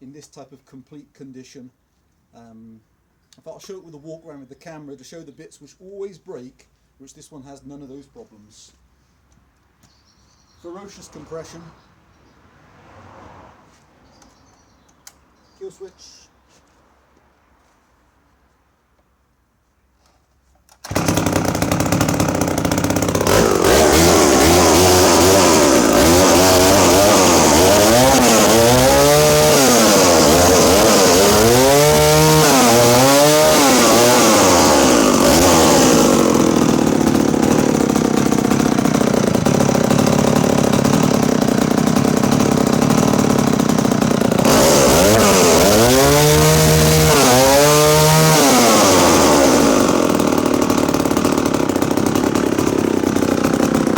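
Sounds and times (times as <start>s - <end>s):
chainsaw engine revving: 20.7s - 53.9s.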